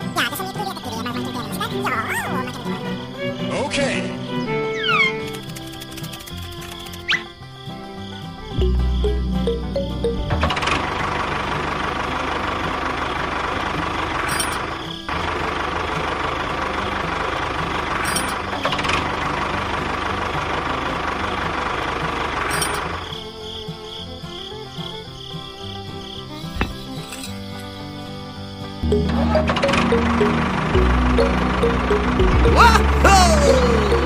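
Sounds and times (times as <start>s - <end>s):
background music: 0.0s - 13.1s, 22.5s - 34.0s.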